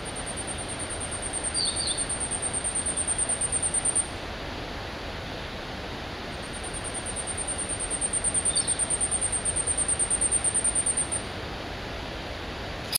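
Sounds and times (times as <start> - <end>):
bird singing high thin pulses: 0.0 - 4.1, 6.4 - 11.3
steady hiss: 0.0 - 12.9.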